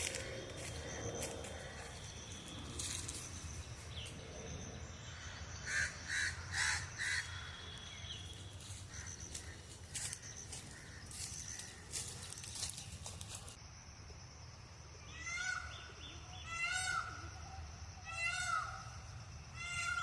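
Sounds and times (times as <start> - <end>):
bird harsh calls: 5.1 - 12.4, 15.0 - 20.0.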